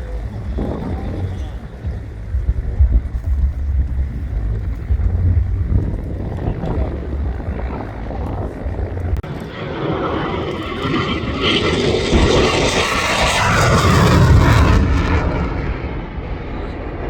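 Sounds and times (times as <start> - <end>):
jet engine roar with rushing hiss: 5.9 - 17.0.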